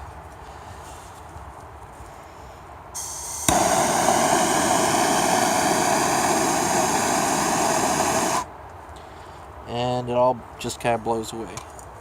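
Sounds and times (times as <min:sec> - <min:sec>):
gas hissing from nozzle: 0:03.0 - 0:08.5
gas torch roaring: 0:03.0 - 0:08.5
torch igniting pop: 0:03.0 - 0:08.5.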